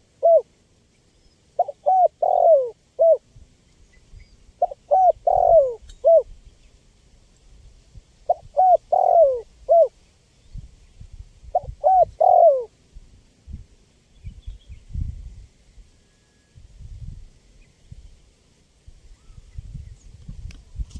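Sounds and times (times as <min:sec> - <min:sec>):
dove cooing: 0:00.0 - 0:00.5, 0:01.6 - 0:03.2, 0:04.6 - 0:06.3, 0:08.3 - 0:09.9, 0:11.5 - 0:12.7.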